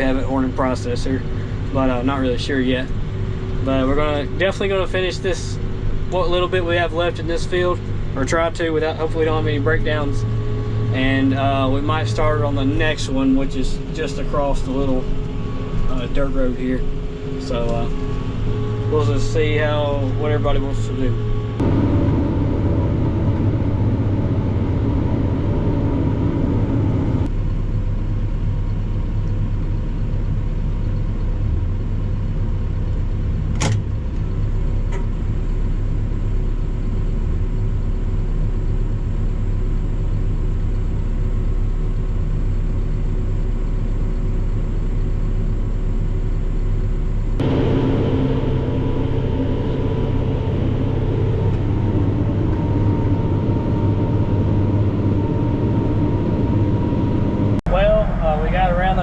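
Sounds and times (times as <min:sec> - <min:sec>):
tractor diesel engine running: 0:00.0 - 0:59.0
sharp click: 0:33.5 - 0:33.9.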